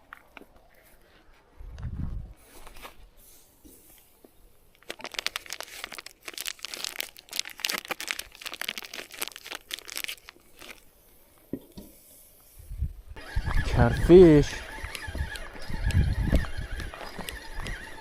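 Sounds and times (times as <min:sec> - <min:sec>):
plastic packaging crinkling: 0:04.7 - 0:10.9.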